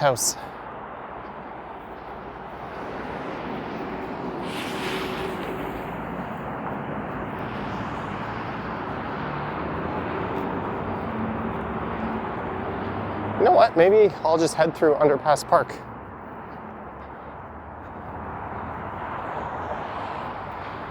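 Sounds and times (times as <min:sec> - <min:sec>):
road traffic rumble: 0:00.0 - 0:20.9
brief rushing hiss: 0:04.4 - 0:06.2.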